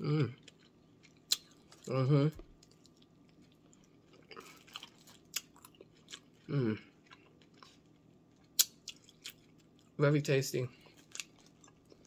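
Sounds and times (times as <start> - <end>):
person humming mm: 0.0 - 0.4, 1.9 - 2.4, 6.5 - 6.9
person chewing food: 0.0 - 10.0, 10.7 - 12.0.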